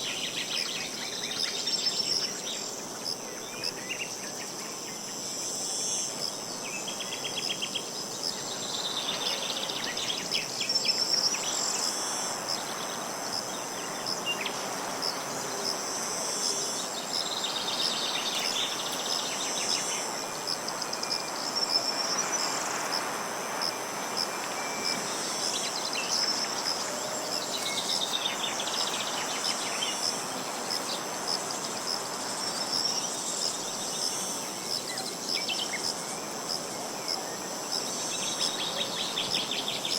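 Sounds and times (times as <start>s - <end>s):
insects chirring: 0.0s - 39.9s
outdoor hiss: 0.0s - 39.9s
short rapid insect trills: 0.0s - 39.9s.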